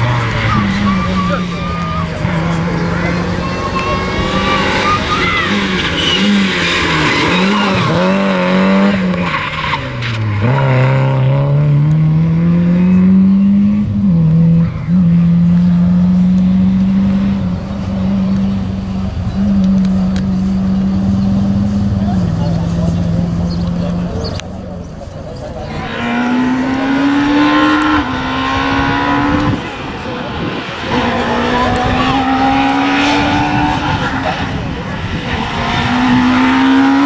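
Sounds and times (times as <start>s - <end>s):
tyres squealing: 0.0s - 10.6s
rally car engine revving: 0.0s - 37.0s.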